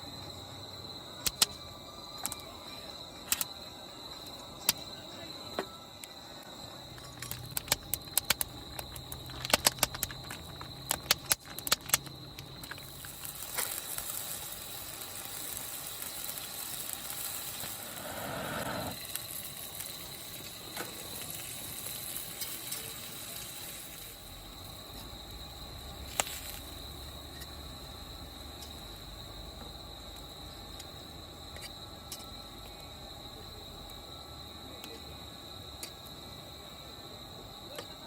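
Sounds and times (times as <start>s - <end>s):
crickets chirping: 0.0s - 38.0s
sharp clicks and knocks: 7.0s - 12.9s.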